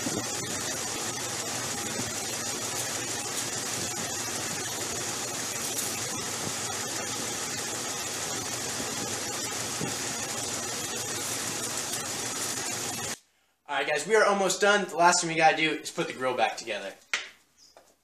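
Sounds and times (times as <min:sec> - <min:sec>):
engine idling: 0:00.0 - 0:13.2
strong hiss: 0:00.0 - 0:13.2.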